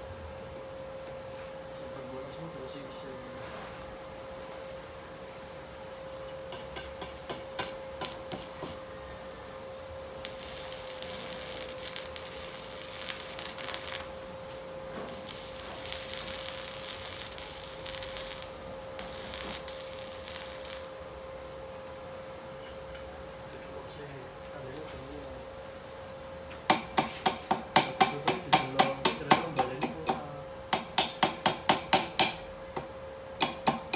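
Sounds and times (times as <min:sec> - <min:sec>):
steady high hum: 0:00.0 - 0:33.9
welding crackling and hissing: 0:06.5 - 0:08.9, 0:10.0 - 0:22.9.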